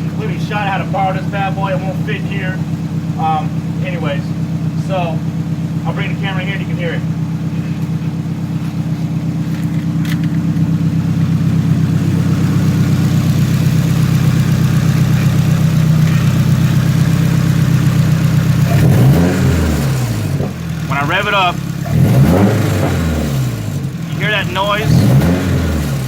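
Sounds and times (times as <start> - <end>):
car engine idling: 0.0 - 26.0
rattle at idle: 7.0 - 18.8.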